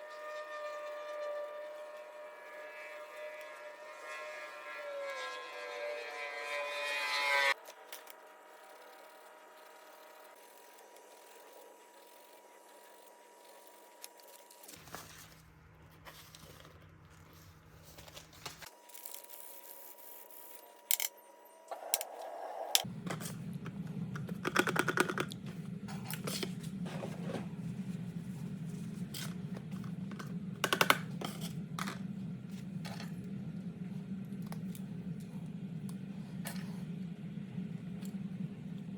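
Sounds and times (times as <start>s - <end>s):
low steady hum: 22.7s - 38.9s.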